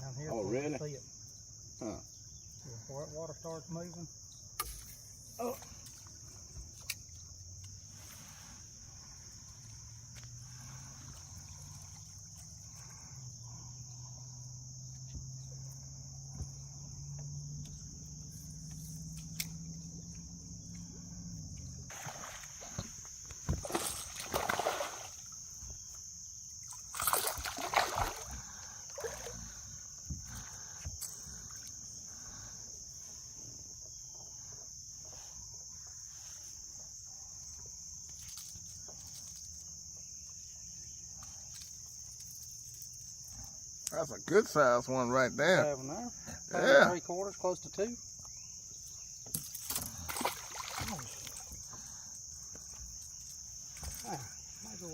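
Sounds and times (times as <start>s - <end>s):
insects chirring: 0.0s - 54.9s
water splashing against boat: 21.9s - 25.9s, 26.6s - 30.8s, 49.5s - 52.0s.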